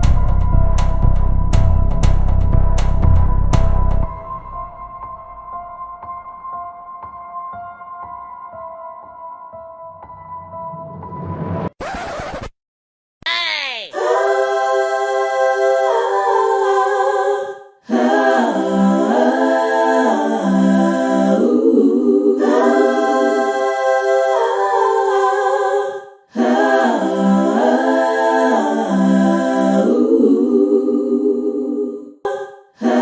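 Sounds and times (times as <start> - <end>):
a cappella voices singing chords: 13.3 - 33.0.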